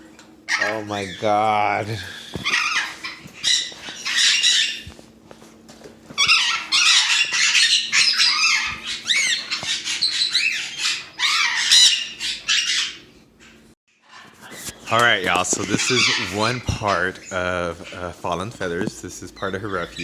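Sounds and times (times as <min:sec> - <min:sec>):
parrots squawking: 0:00.5 - 0:05.0, 0:06.1 - 0:20.0.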